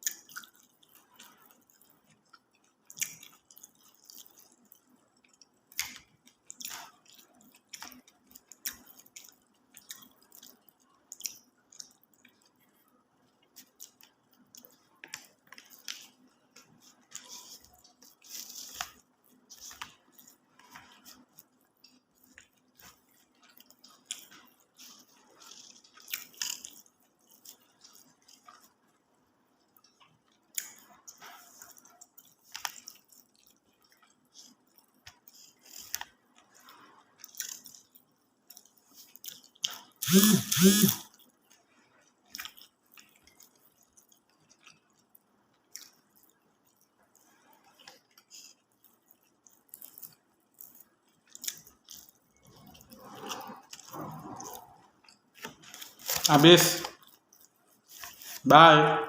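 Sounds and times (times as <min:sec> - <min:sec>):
chewing and crunching food: 0:00.0 - 0:58.6
short pitched vocal sound: 0:40.0 - 0:41.0.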